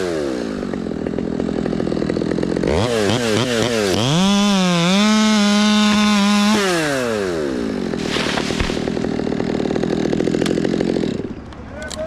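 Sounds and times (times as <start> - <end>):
chainsaw revving and idling: 0.0 - 12.0.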